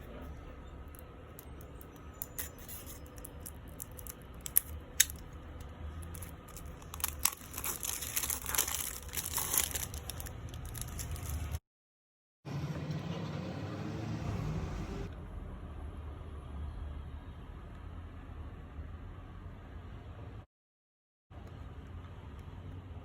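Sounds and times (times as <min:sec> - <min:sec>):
plastic wrapping crinkling: 0:02.2 - 0:05.3, 0:06.0 - 0:11.6.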